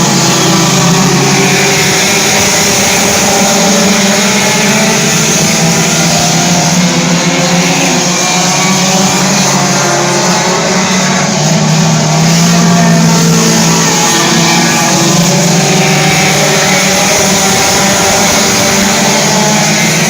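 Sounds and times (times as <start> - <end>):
race car engines droning: 0.0 - 20.0.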